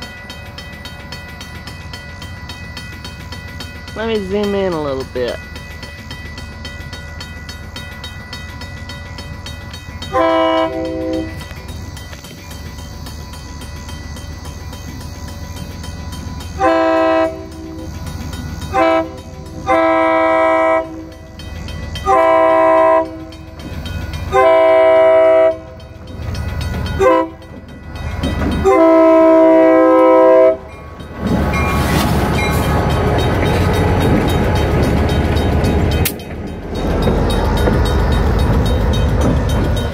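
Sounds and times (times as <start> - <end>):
train engine and wheel noise: 0.0 - 39.9
locomotive air horn blasts: 10.1 - 11.4, 16.6 - 17.8, 18.7 - 21.0, 22.0 - 23.3, 24.3 - 25.8, 27.0 - 27.4, 28.6 - 30.7.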